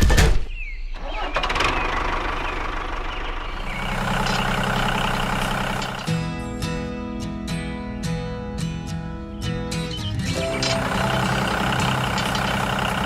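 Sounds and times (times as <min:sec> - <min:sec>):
tractor engine starting and idling: 0:01.0 - 0:06.3, 0:10.2 - 0:13.0.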